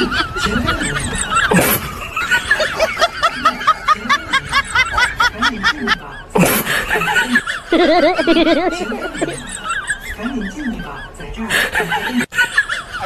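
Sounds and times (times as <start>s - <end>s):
high-pitched giggles: 6.2s - 9.6s.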